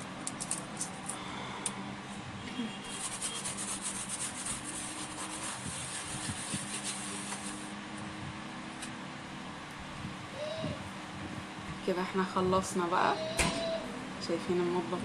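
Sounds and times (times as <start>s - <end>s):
scrubbing on oven door glass: 2.8s - 7.8s.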